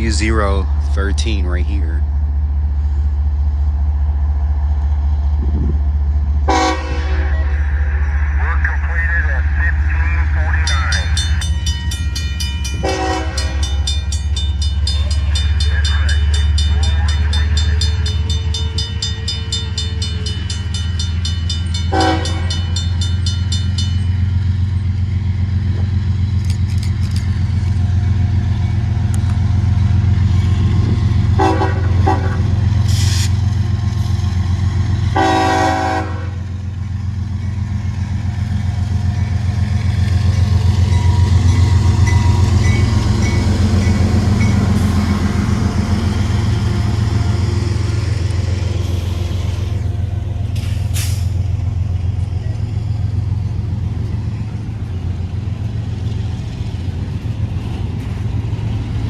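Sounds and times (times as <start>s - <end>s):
freight train rumbling past: 0.0s - 59.0s
train horn blasts: 6.5s - 7.6s, 12.8s - 13.9s, 21.9s - 22.7s, 31.3s - 32.6s, 35.1s - 36.4s.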